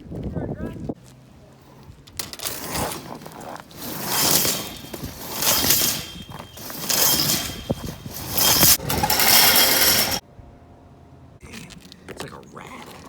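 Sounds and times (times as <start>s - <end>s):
drain cable spinning and scraping: 2.1s - 10.2s.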